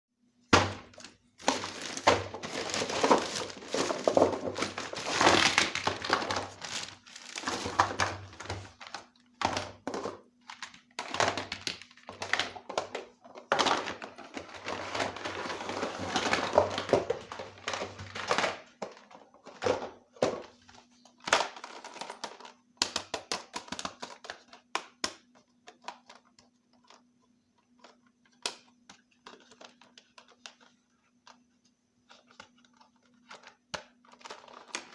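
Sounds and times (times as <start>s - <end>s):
plastic packaging crinkling: 0.6s - 9.8s.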